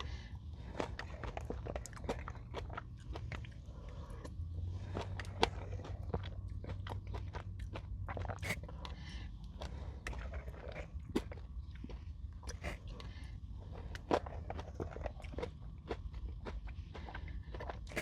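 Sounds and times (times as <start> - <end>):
crunching granola bar: 9.5 - 18.0.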